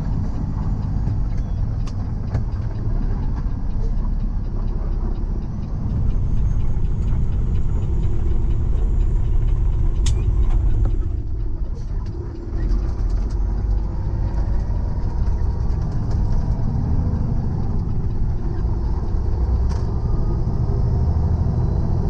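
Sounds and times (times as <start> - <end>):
truck engine and road noise: 0.0 - 22.0
sharp click: 10.0 - 11.0.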